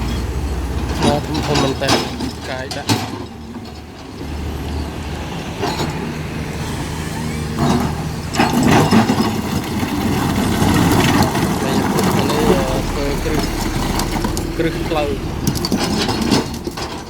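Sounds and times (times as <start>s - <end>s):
excavator diesel engine running: 0.0s - 17.0s
rushing noise: 4.4s - 17.0s.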